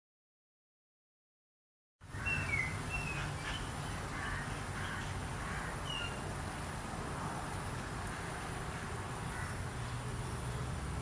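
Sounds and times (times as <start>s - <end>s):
birds chirping: 2.0s - 6.3s, 8.0s - 11.0s.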